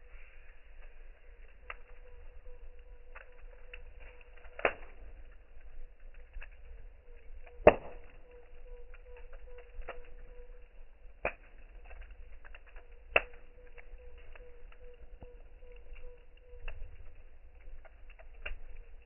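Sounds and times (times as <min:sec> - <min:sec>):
campfire crackling: 0:00.0 - 0:19.0
loud pops: 0:07.6 - 0:08.0.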